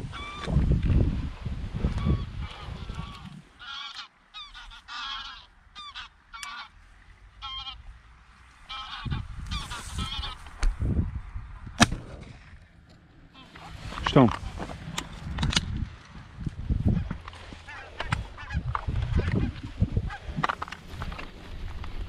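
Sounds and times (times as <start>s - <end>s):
geese honking: 2.0s - 10.6s, 13.3s - 14.6s, 16.8s - 21.2s
sharp crack: 11.7s - 12.8s.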